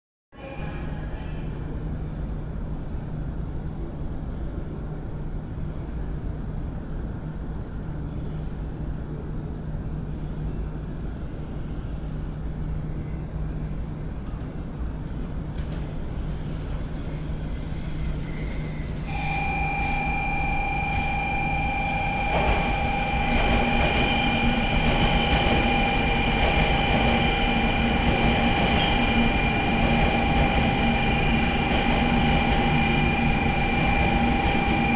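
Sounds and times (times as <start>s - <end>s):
train rumble: 10.1s - 34.9s
steady high squeal: 17.0s - 34.9s.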